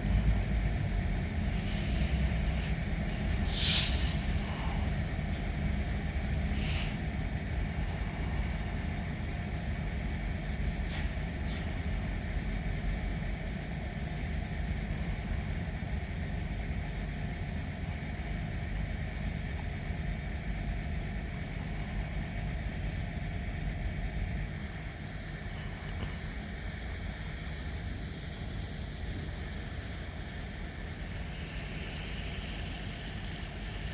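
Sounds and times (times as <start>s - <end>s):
diesel locomotive running: 0.0s - 33.9s
air hiss: 1.4s - 7.1s, 25.6s - 33.9s.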